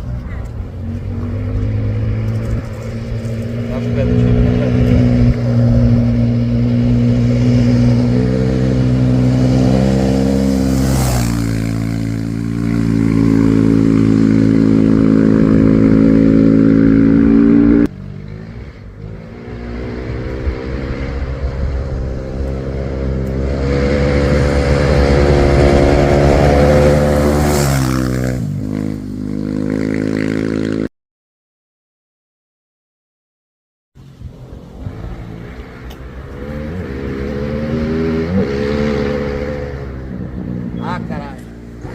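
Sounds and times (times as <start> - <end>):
racing engine revving high: 1.0 - 17.9, 18.5 - 29.0, 35.0 - 41.9.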